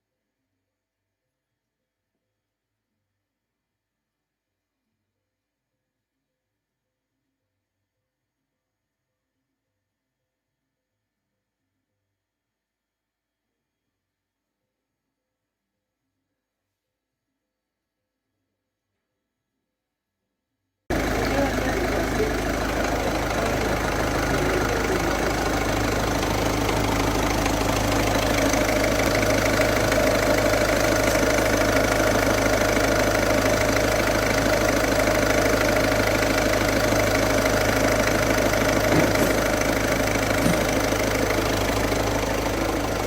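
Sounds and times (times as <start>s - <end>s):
car engine running: 20.9s - 43.0s.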